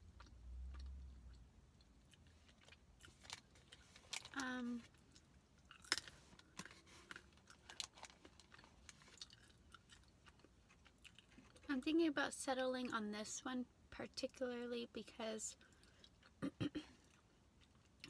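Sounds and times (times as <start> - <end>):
person chewing: 0.0 - 11.7.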